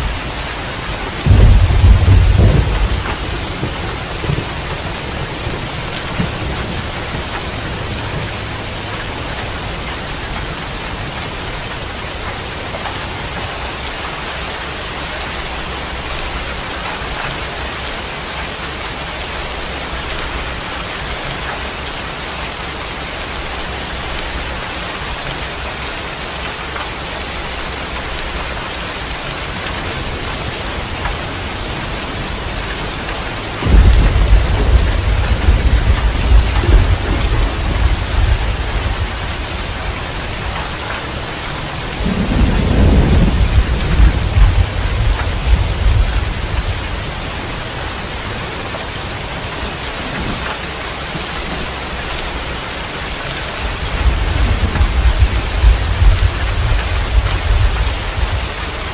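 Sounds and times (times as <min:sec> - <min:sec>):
low thunder rumble: 0:00.0 - 0:14.0, 0:27.8 - 0:50.5, 0:53.1 - 0:58.9
steady rain falling: 0:00.0 - 0:58.9
loud thunderclap: 0:01.0 - 0:08.8, 0:29.7 - 0:40.8, 0:41.6 - 0:47.3, 0:53.7 - 0:58.7.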